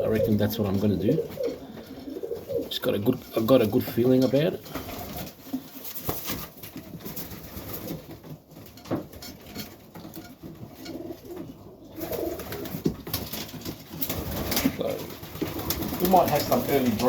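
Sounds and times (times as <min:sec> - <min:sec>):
pigeons cooing: 0:00.0 - 0:03.4, 0:10.7 - 0:17.0.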